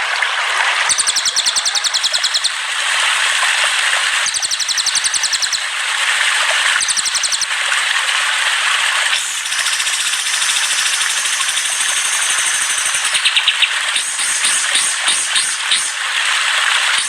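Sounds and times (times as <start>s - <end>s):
recorded songbird trills: 0.9s - 2.7s, 4.3s - 5.6s, 6.8s - 7.5s, 9.2s - 16.0s.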